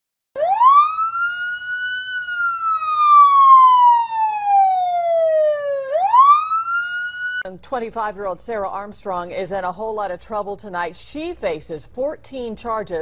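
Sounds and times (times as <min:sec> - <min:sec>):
police siren wailing: 0:00.4 - 0:07.5.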